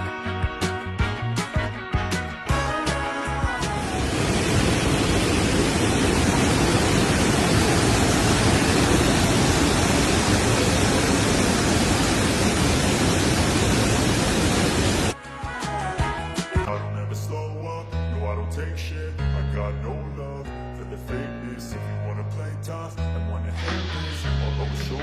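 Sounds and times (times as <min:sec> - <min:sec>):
waterfall rushing: 0:03.6 - 0:15.2.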